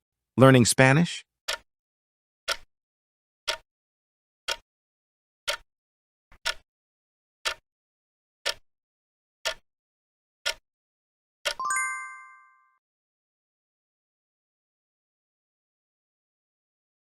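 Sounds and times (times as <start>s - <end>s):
timer ticking: 1.5s - 1.7s, 2.5s - 2.7s, 3.5s - 3.7s, 4.5s - 4.7s, 5.5s - 5.7s, 6.4s - 6.7s, 7.4s - 7.6s, 8.4s - 8.6s, 9.4s - 9.6s, 10.4s - 10.6s, 11.4s - 12.4s.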